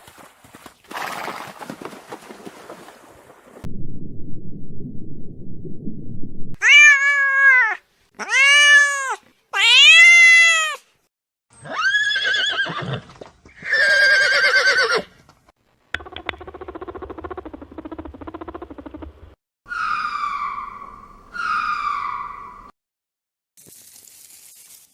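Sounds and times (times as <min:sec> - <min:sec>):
cat meowing: 0:06.6 - 0:10.8.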